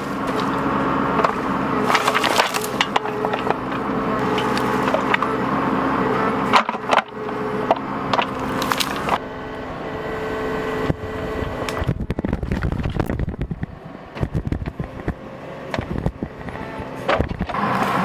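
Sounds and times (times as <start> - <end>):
breaking wood crackling: 0.0 - 5.3, 6.6 - 9.2
wood cracking: 0.0 - 5.4, 6.5 - 9.2
diesel engine under load: 0.0 - 18.0.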